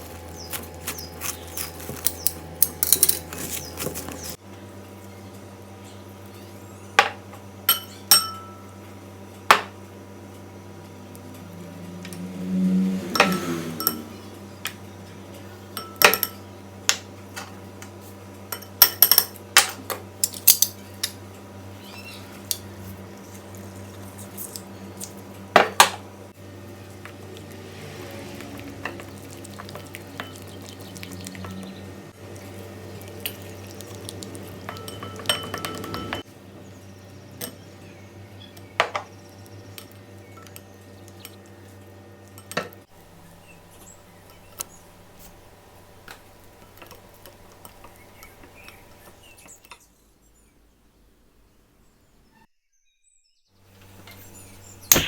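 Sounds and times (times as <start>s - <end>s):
utensils clinking against dishes: 0.1s - 4.4s, 7.0s - 8.8s, 13.0s - 14.8s, 15.7s - 16.5s, 18.5s - 21.2s, 22.4s - 22.7s, 34.4s - 36.3s.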